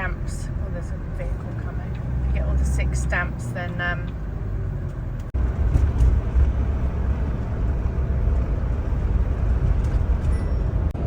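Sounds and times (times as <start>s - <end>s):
motorhome road and engine rumble: 0.0s - 11.0s.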